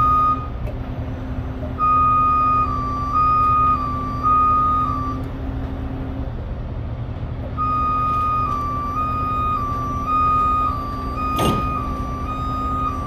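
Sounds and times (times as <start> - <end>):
two-tone truck warning alarm: 0.0 - 0.6, 1.8 - 5.4, 7.6 - 13.0
truck engine rumbling: 0.0 - 13.0.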